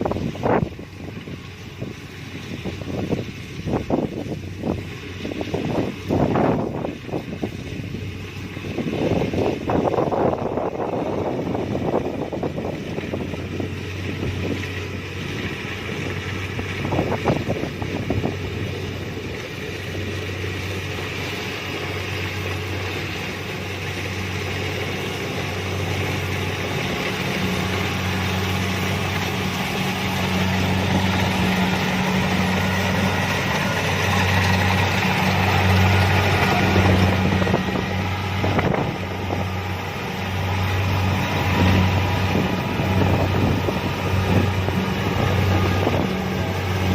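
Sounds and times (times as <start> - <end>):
combine harvester engine hum: 0.0 - 46.9.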